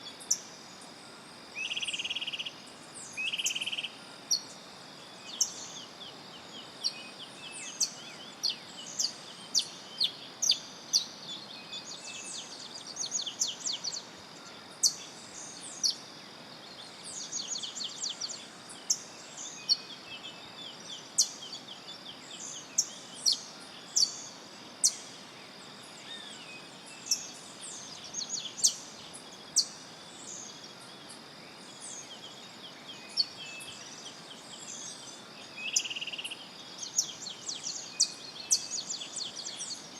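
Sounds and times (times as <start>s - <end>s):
insect hum: 0.0s - 39.9s.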